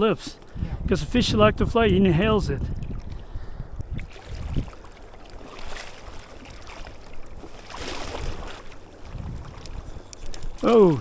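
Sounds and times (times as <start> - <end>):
river water running: 0.0 - 11.0
wind buffeting microphone: 0.0 - 11.0
water splashing: 2.5 - 11.0.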